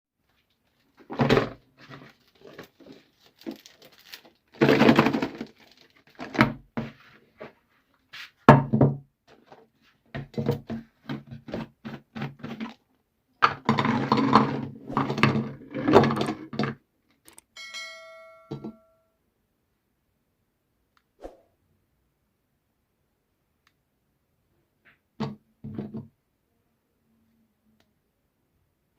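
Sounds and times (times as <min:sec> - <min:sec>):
short ringing tone: 0:17.6 - 0:19.2.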